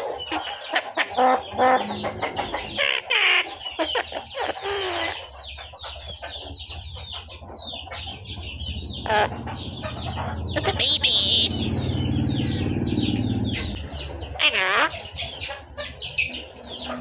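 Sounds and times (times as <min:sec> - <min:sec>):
bird screeching: 0:00.0 - 0:05.3, 0:09.0 - 0:09.6, 0:10.5 - 0:13.7
pet bird chirps and squawks: 0:00.0 - 0:05.4, 0:08.9 - 0:15.5.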